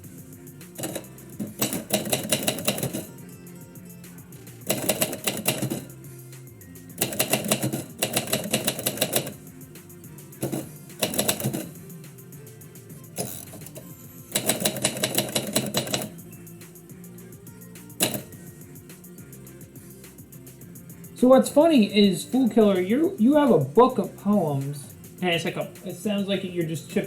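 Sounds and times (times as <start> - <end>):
instrumental background music: 0.0 - 27.0
typewriter keys striking: 0.8 - 3.2, 4.7 - 6.0, 7.0 - 9.4, 10.4 - 11.8, 13.2 - 16.2, 18.0 - 18.4.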